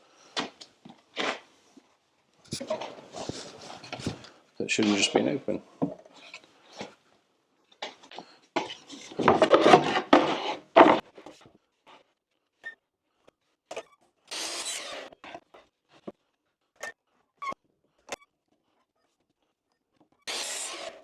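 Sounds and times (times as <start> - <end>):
wooden boards rubbing and scraping: 8.6 - 11.4, 14.3 - 15.4, 20.3 - 21.0.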